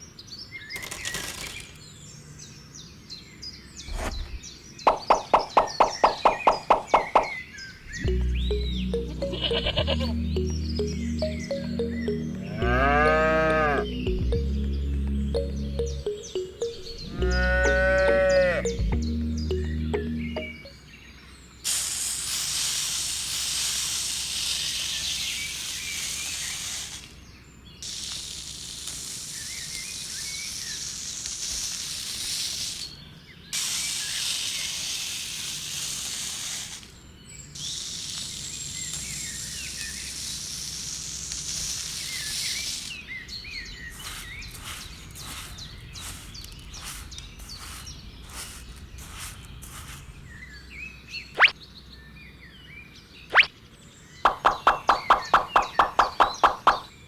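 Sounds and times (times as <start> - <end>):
birds chirping faintly: 0.0 - 21.7, 36.8 - 57.0
steady hissing noise: 21.6 - 27.2, 27.8 - 33.0, 33.6 - 37.0, 37.6 - 43.1
short scraping or tapping strokes: 43.9 - 50.2.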